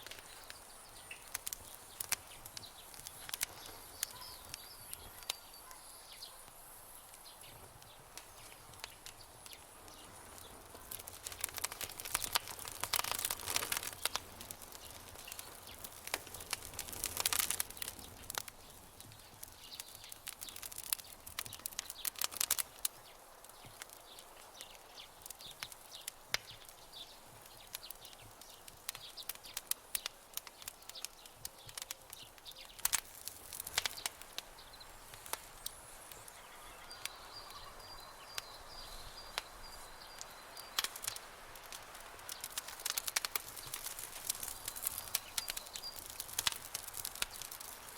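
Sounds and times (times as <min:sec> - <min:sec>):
campfire crackling and popping: 0:00.0 - 0:47.9
soft hiss: 0:00.0 - 0:47.9
faint high broken chirping: 0:00.1 - 0:06.4, 0:42.3 - 0:47.8.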